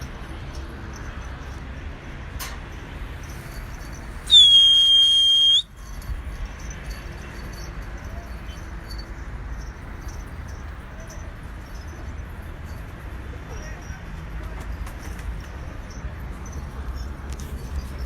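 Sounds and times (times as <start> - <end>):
high-pitched whistle blast: 4.3 - 5.7.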